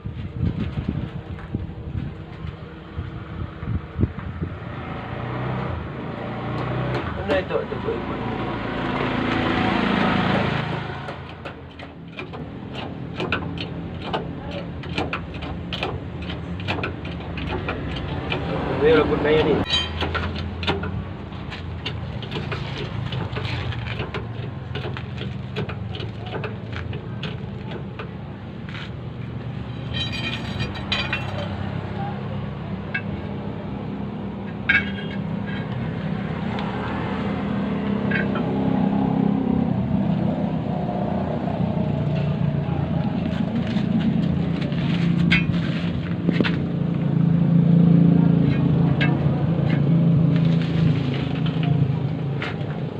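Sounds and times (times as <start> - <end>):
engine running: 0.0 - 52.9
tools clinking on metal: 19.4 - 20.9, 29.7 - 31.5, 34.6 - 35.8
short metallic clinks: 19.6 - 20.2.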